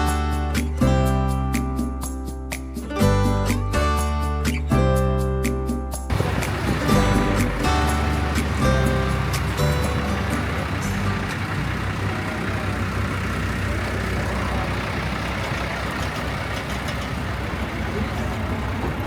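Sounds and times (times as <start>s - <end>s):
background music: 0.9s - 11.4s
rushing noise: 6.1s - 19.0s
vehicle engine rumble: 6.1s - 19.0s.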